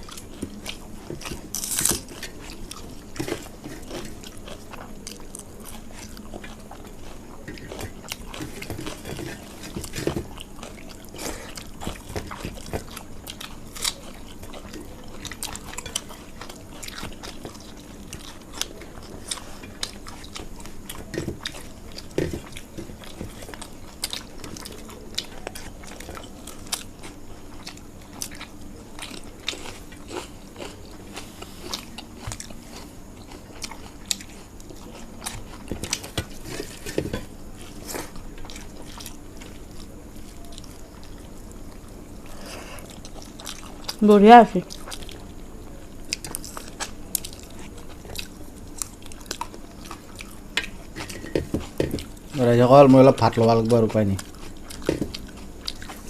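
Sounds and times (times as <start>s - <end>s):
chewing crunchy food: 0.0s - 56.0s
faint low hum: 0.0s - 56.0s.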